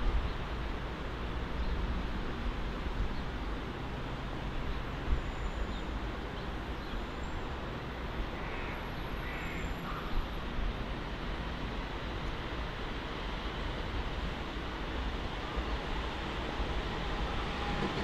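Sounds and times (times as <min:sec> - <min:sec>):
high-speed train rumble and hiss: 0:00.0 - 0:18.0
faint bird caws: 0:08.4 - 0:10.2.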